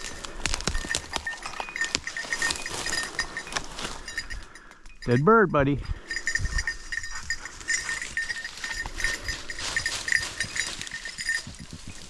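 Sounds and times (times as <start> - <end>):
rustling of vegetation: 0.0 - 5.2, 6.1 - 12.0
collar bell jingling: 0.0 - 12.0.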